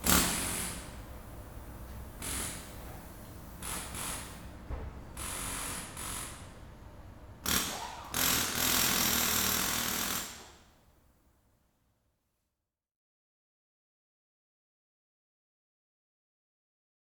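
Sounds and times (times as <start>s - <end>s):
power tool running in bursts: 0.0s - 1.4s, 7.4s - 10.6s.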